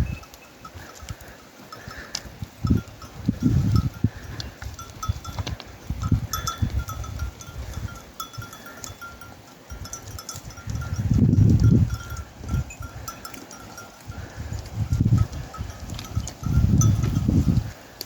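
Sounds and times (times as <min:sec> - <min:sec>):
livestock bells clinking: 0:00.0 - 0:17.8.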